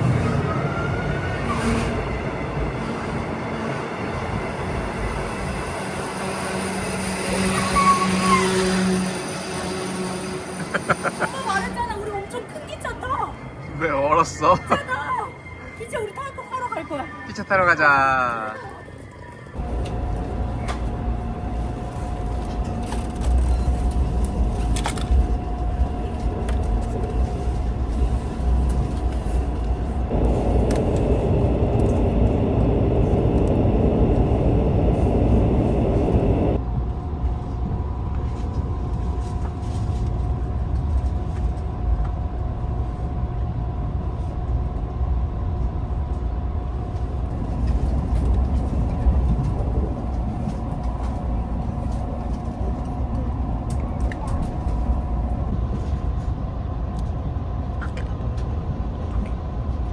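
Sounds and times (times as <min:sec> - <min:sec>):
vehicle rumbling: 0:19.5 - 0:59.9.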